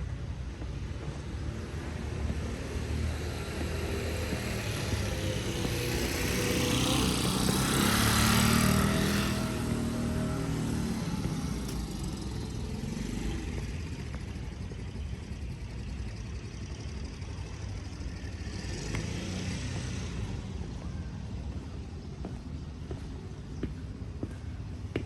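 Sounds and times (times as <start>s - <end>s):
street ambience rumble: 0.0s - 25.0s
small engine running: 3.4s - 20.3s.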